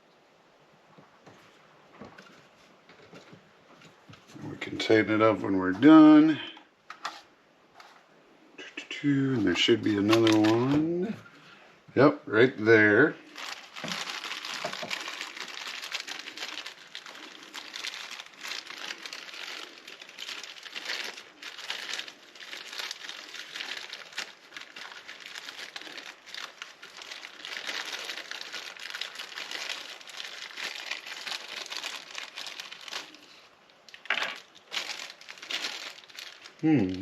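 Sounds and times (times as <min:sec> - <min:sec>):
plastic packaging crinkling: 0:09.4 - 0:11.4, 0:13.2 - 0:37.0.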